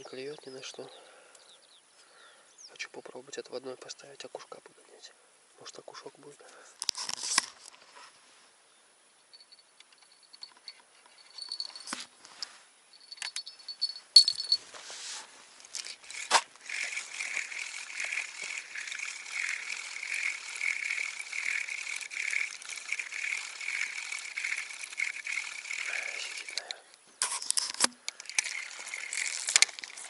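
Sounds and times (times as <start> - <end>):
fishing tackle clicking and rattling: 9.9 - 12.0, 15.6 - 30.0
spinning reel whirring: 15.7 - 26.8, 28.1 - 30.0.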